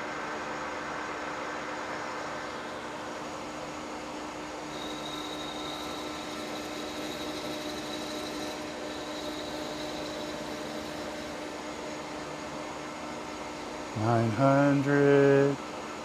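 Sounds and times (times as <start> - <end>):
metal lathe running: 4.6 - 12.8.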